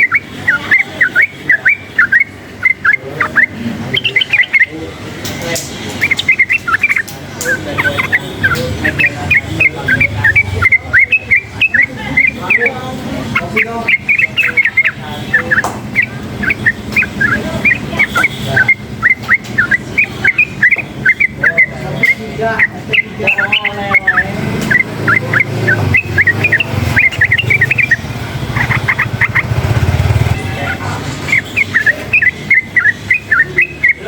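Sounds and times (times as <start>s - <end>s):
bird chirping rapidly: 0.0s - 34.0s
traffic rumble: 0.0s - 34.0s.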